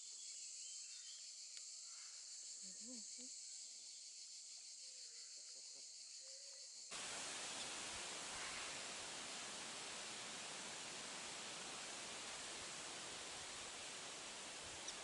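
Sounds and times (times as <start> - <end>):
distant voices: 6.9 - 15.0
steady high hiss: 6.9 - 15.0.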